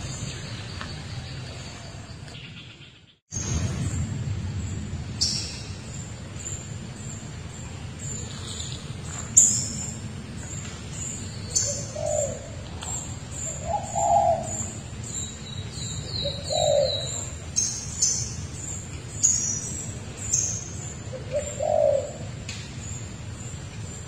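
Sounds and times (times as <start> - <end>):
bird cooing: 11.6 - 12.6, 13.4 - 14.7, 16.1 - 17.3, 21.1 - 22.3.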